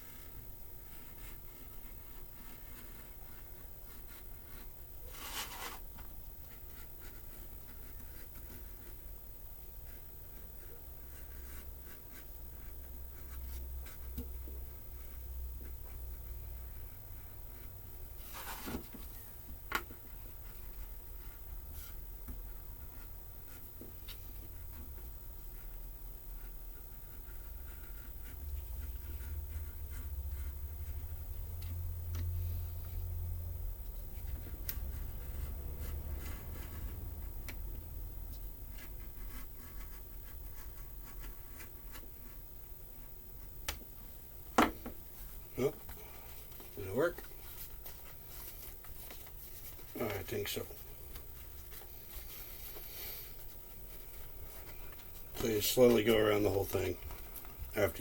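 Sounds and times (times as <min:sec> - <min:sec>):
steady low hum: 0:00.0 - 0:58.0
knife scratching material: 0:04.0 - 0:05.8.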